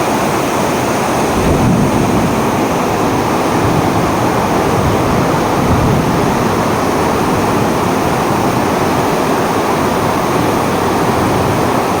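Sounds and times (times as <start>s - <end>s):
heavy rain: 0.0s - 12.0s
wind: 0.0s - 12.0s.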